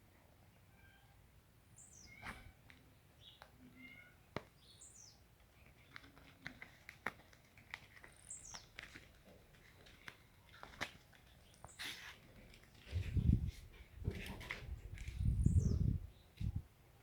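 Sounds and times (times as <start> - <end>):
faint bird chirps: 1.8 - 2.6
small clicks and taps: 5.4 - 11.8.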